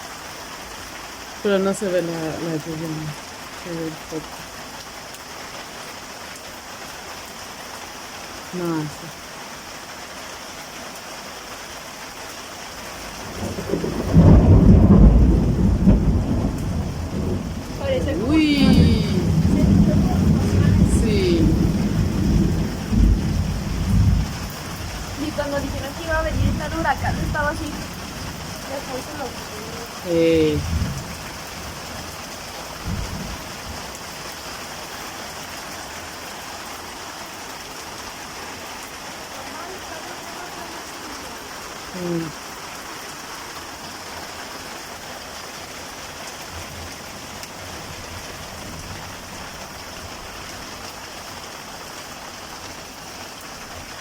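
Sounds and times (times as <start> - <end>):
rain falling: 0.0 - 54.0
thunder rumbling: 13.2 - 32.2, 32.8 - 33.9.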